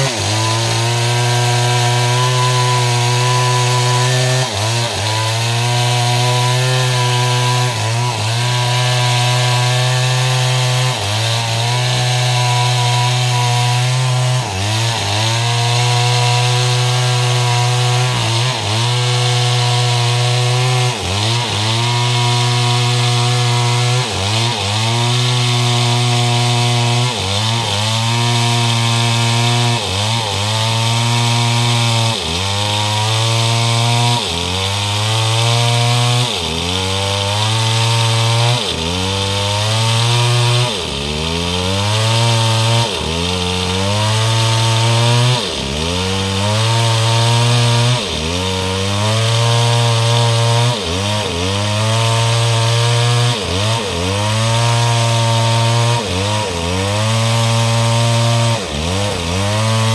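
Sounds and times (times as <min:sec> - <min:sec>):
chainsaw sawing wood: 0:00.0 - 0:59.9.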